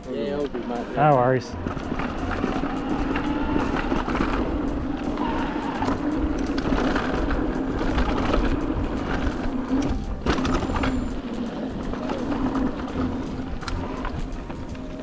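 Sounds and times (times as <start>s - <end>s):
bike rattling and clicking: 0.0s - 15.0s
tyre rumble on dirt trail: 0.5s - 15.0s.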